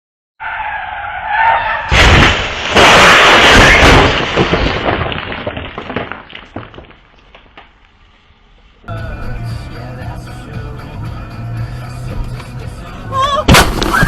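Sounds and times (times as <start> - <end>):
car crash crunching: 0.7 - 7.8, 13.5 - 14.0
debris clattering: 1.9 - 7.8, 13.5 - 14.0.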